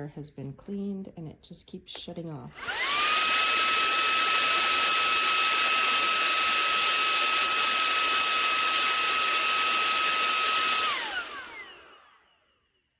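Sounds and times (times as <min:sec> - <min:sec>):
handheld vacuum running: 0:02.6 - 0:12.8.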